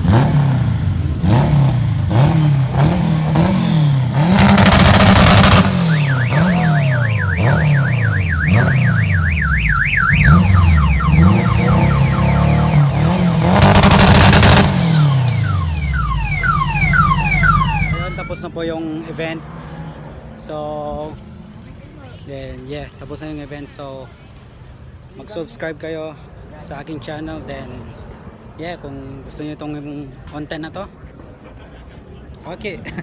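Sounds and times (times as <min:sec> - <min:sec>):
car engines revving: 0:00.0 - 0:18.4
loud noise bursts: 0:02.8 - 0:18.4
car alarm siren: 0:03.4 - 0:18.4.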